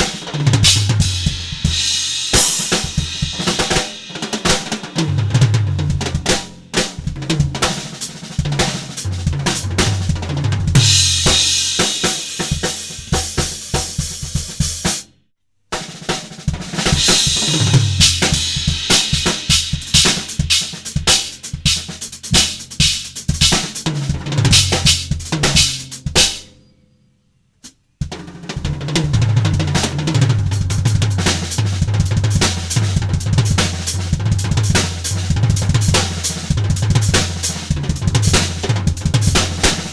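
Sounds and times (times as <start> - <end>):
backing track with bass line: 0.0 - 3.7, 5.0 - 6.4, 8.8 - 13.3, 17.2 - 20.8, 21.6 - 26.2, 28.7 - 39.9
drum kit groove: 0.0 - 15.1, 15.8 - 26.5, 28.0 - 39.9.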